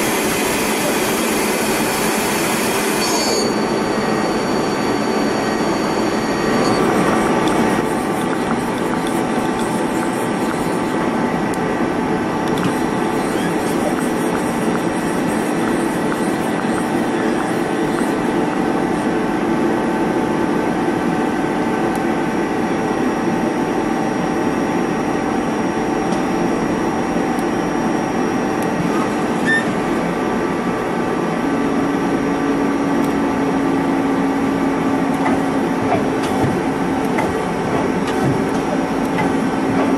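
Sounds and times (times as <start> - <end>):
machine whining tones: 0.0 - 19.8
lathe machine running: 0.0 - 39.9.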